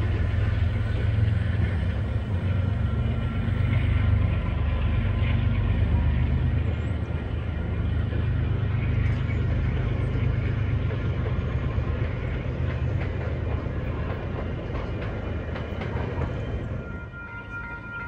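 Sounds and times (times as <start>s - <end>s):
train rumbling on rails: 0.0s - 18.0s.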